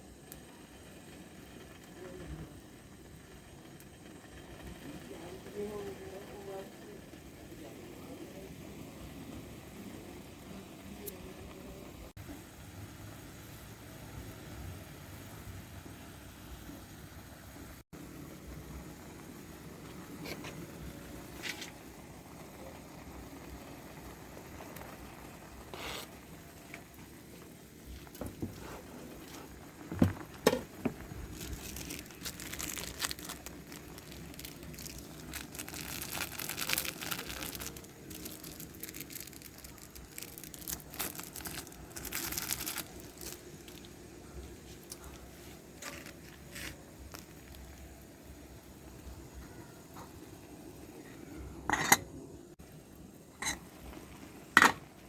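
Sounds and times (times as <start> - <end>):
plastic packaging crinkling: 28.1 - 44.0, 45.8 - 47.9.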